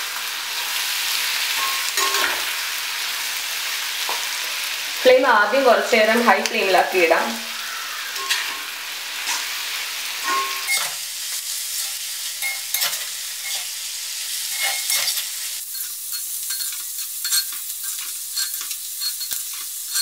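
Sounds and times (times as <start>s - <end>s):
food sizzling in a pan: 0.0s - 20.0s
spatula scraping iron pan: 10.2s - 11.0s, 11.7s - 13.8s, 14.4s - 20.0s.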